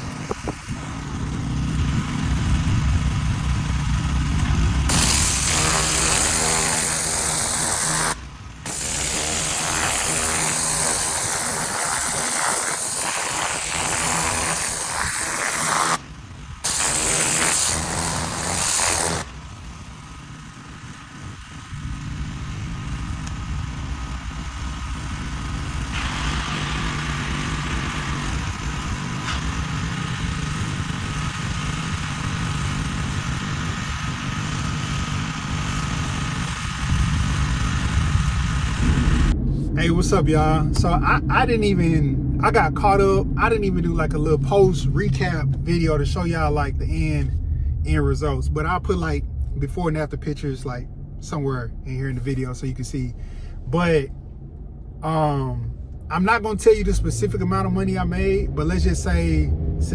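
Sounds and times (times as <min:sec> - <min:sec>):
pressure washer engine running: 0:00.0 - 0:39.4
high-pressure spray hissing: 0:04.9 - 0:19.3, 0:25.9 - 0:39.3.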